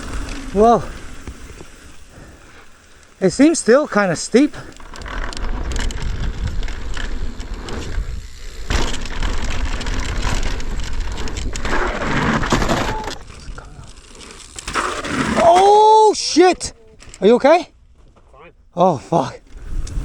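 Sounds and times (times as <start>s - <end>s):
bike tyres rattling over rough ground: 0.0s - 20.0s
wind buffeting on microphone: 5.1s - 8.6s.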